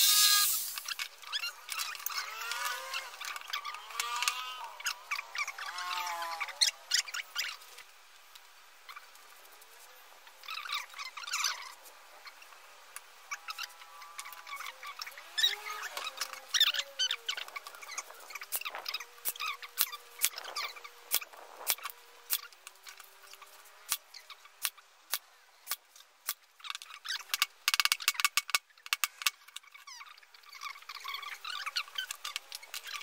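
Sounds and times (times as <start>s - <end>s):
high squeaky chirps: 13.3s - 22.5s.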